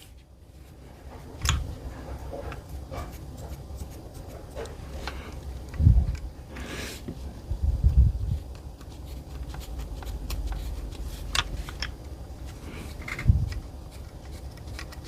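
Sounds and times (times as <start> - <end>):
faint rubbing of metal parts: 8.3 - 15.0.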